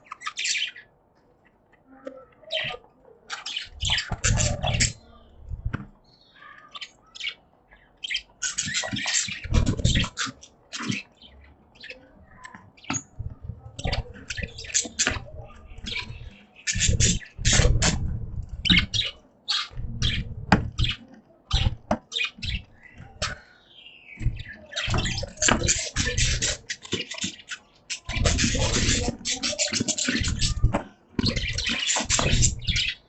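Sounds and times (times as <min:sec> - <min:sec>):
budgies chirping and squawking: 0:00.0 - 0:33.0
low bumps: 0:03.8 - 0:06.0, 0:13.0 - 0:19.2, 0:19.8 - 0:21.0.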